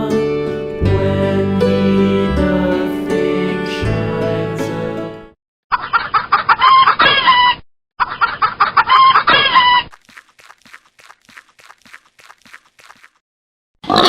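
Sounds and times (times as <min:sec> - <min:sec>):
faint chicken clucks: 0:05.7 - 0:09.9
chicken calling: 0:05.7 - 0:10.0.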